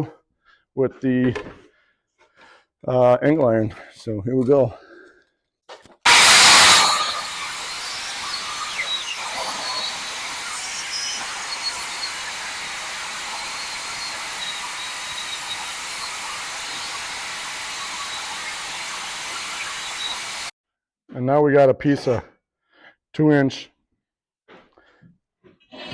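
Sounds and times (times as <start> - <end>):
faint high squeals: 6.1 - 20.5
power saw cutting steel: 6.1 - 20.5.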